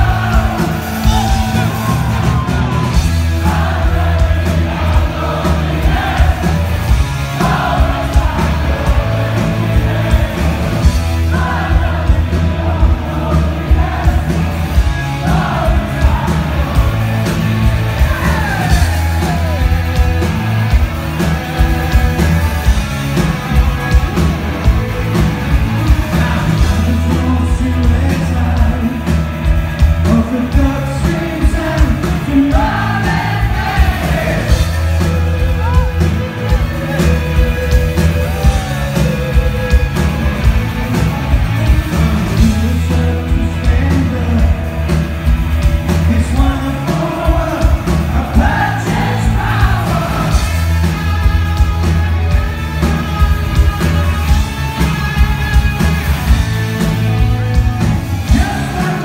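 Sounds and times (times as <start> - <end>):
rock band playing: 0.0 - 59.0
man singing lead vocal: 7.2 - 17.4, 25.5 - 29.3, 30.0 - 37.5, 41.7 - 45.0, 45.9 - 50.8, 58.2 - 59.0.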